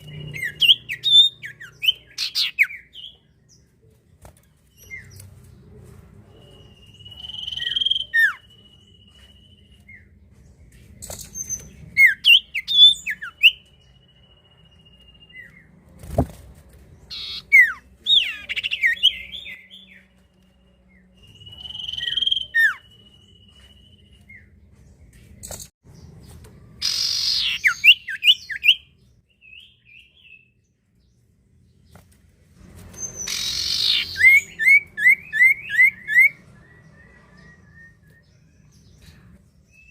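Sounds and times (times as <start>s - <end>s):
bird whistling and trilling: 0.0s - 3.2s, 6.5s - 10.0s, 11.0s - 13.7s, 17.1s - 20.0s, 21.2s - 24.4s, 26.8s - 30.4s, 33.0s - 38.3s.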